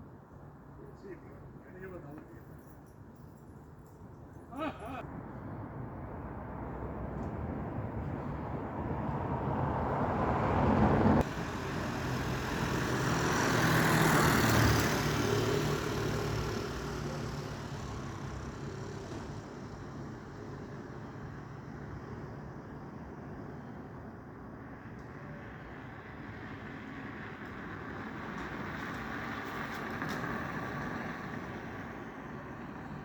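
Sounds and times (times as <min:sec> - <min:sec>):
road traffic passing: 0:04.8 - 0:33.0
vehicle engine hum: 0:05.0 - 0:20.6.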